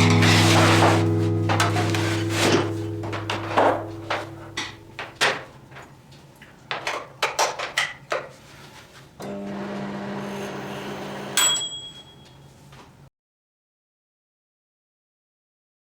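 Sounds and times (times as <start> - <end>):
microwave humming: 0.0 - 5.8, 9.2 - 12.2.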